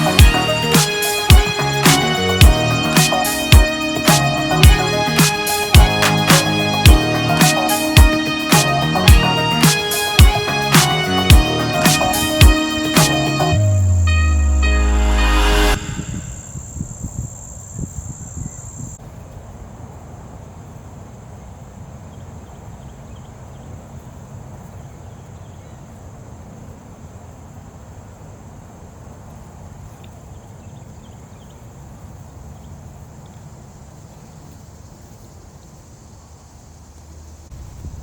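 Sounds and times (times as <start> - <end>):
crickets trilling: 15.9 - 19.0, 29.8 - 38.0.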